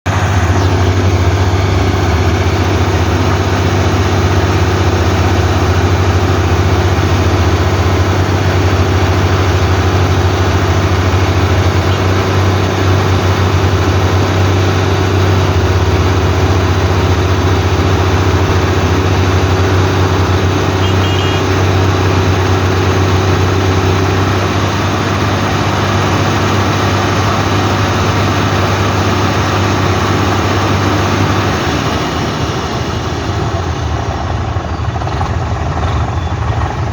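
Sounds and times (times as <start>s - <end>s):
heavy diesel engine running: 0.0s - 36.9s.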